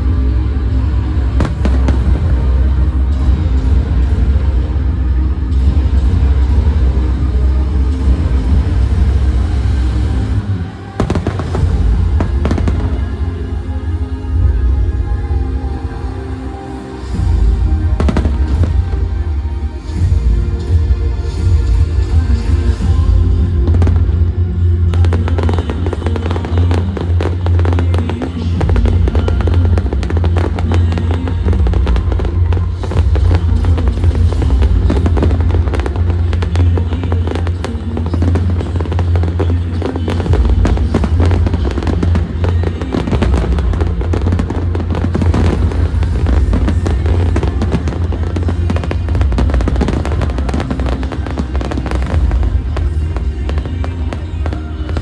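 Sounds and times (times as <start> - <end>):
loud music with heavy bass: 0.0 - 55.0
fireworks bursting: 1.2 - 4.2, 10.7 - 13.8, 16.7 - 20.8, 23.7 - 55.0.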